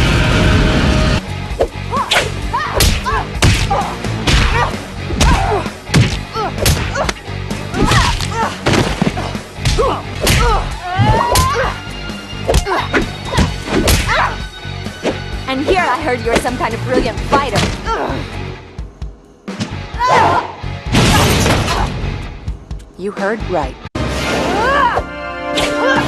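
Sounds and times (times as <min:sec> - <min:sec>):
low background music: 0:00.0 - 0:26.0
punch and kick impacts: 0:02.1 - 0:11.7, 0:12.5 - 0:14.3, 0:20.9 - 0:22.0.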